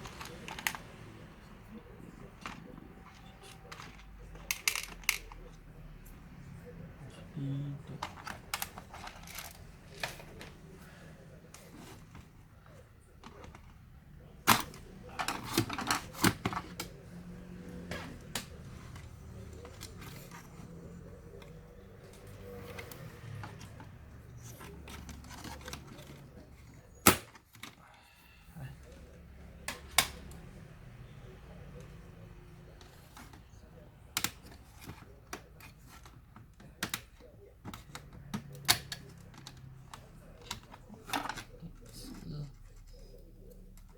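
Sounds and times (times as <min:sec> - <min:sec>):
plastic and metal parts clicking: 0:00.0 - 0:01.0, 0:02.3 - 0:05.6, 0:07.9 - 0:10.6, 0:14.4 - 0:17.0, 0:34.1 - 0:42.0.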